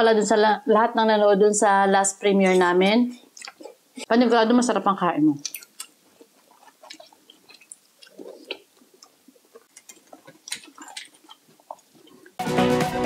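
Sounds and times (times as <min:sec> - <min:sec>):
chewing with small clicks: 0:03.2 - 0:04.1, 0:05.4 - 0:12.4
electronic dance music: 0:12.4 - 0:13.0.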